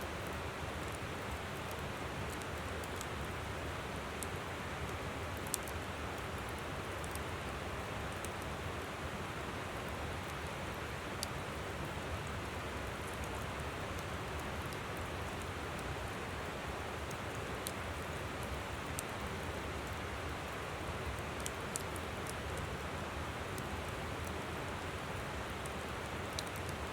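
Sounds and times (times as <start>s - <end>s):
campfire crackling: 0.1s - 9.1s, 9.8s - 26.9s.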